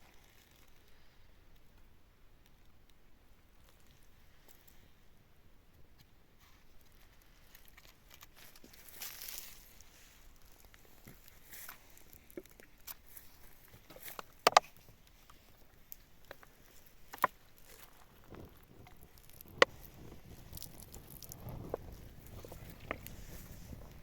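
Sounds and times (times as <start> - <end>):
soft handling clicks and knocks: 10.4 - 19.9
sharp clicks: 14.1 - 14.7.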